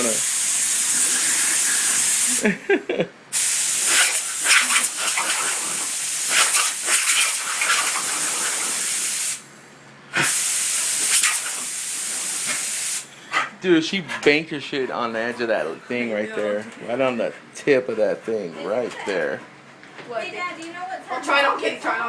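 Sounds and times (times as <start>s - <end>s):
compressed air hissing: 0.0s - 2.5s, 3.3s - 13.2s.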